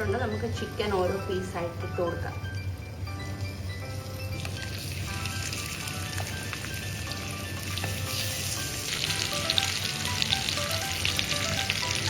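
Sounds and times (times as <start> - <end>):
chicken sizzling in hot oil: 4.0 - 12.0.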